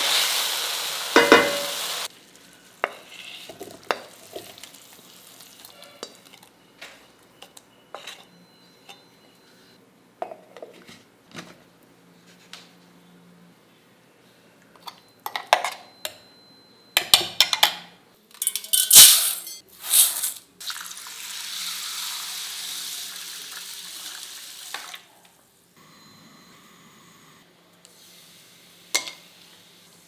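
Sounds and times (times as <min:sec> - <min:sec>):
pressure cooker steam hissing: 0:00.0 - 0:02.1.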